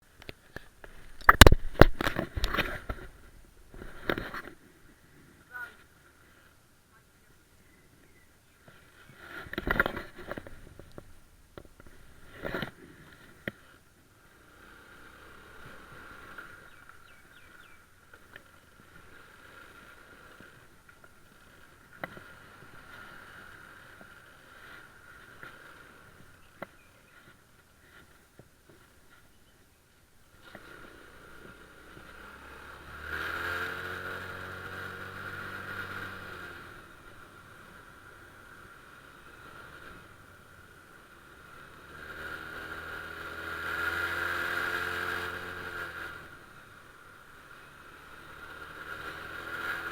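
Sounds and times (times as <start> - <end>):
brief rustle: 0.2 - 4.6
scooter engine running: 0.2 - 6.0, 8.8 - 29.3, 30.3 - 49.9.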